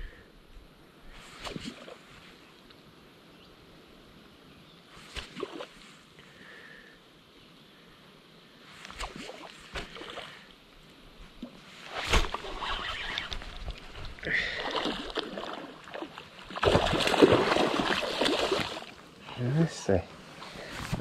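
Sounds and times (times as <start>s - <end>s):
fish splashing at surface: 11.9s - 18.9s.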